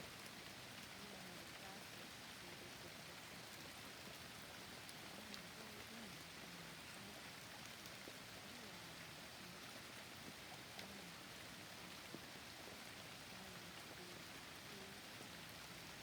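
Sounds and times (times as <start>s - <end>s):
rain drop ticks: 0.0s - 16.0s
soft rain hiss: 0.0s - 16.0s.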